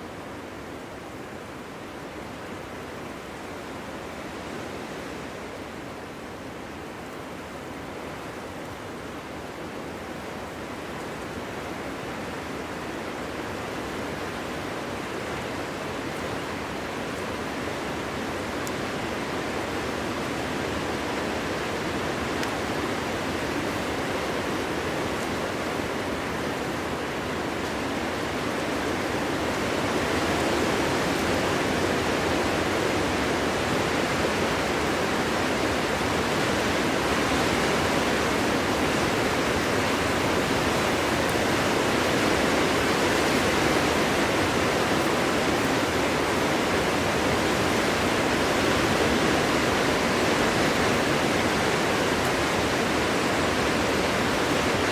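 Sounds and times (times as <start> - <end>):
strong wind blowing through trees: 0.0 - 54.9.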